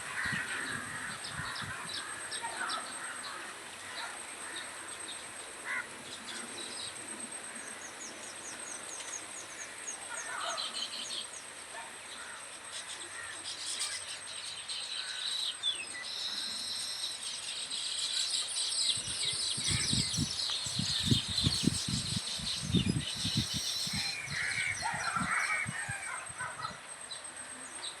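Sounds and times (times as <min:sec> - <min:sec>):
insect buzz: 0:00.0 - 0:28.0
small birds chirping: 0:08.1 - 0:28.0.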